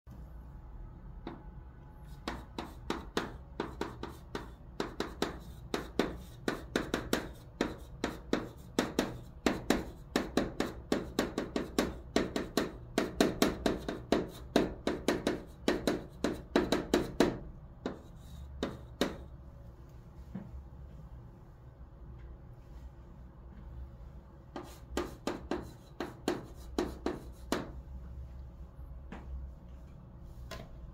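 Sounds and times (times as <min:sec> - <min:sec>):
chalk writing on a chalkboard: 0:02.0 - 0:19.3, 0:24.5 - 0:27.8.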